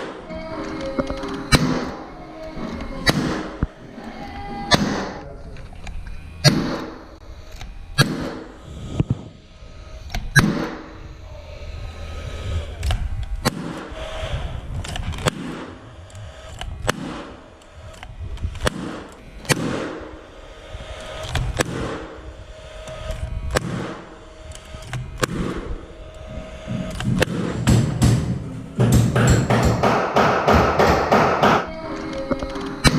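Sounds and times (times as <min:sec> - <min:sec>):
nail gun firing: 0:01.5 - 0:02.0, 0:03.0 - 0:03.6, 0:04.7 - 0:05.2, 0:06.4 - 0:07.0, 0:08.0 - 0:08.5, 0:10.3 - 0:10.8, 0:13.4 - 0:14.0, 0:15.2 - 0:15.8, 0:16.5 - 0:17.4, 0:18.6 - 0:20.0, 0:21.3 - 0:22.1, 0:23.5 - 0:24.0, 0:25.2 - 0:25.6, 0:27.0 - 0:31.7.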